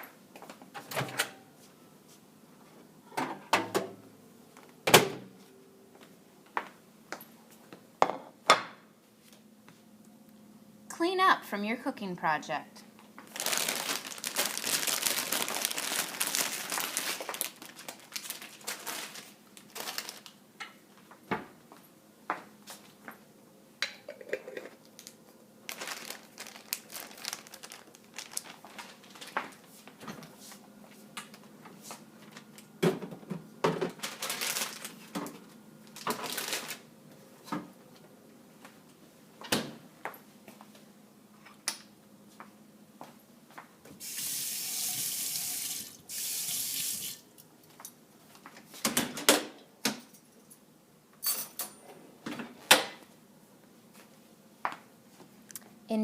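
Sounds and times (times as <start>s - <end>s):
packaging crinkling: 13.2s - 20.4s, 24.9s - 29.7s, 33.9s - 35.1s, 35.9s - 36.9s
dishes and utensils clinking: 51.2s - 51.9s.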